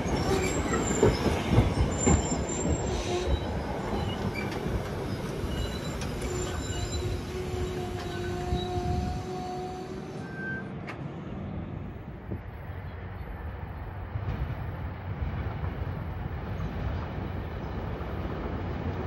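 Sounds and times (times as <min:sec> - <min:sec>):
train wheel squeal: 0:00.0 - 0:10.8
train rumble: 0:00.0 - 0:19.0.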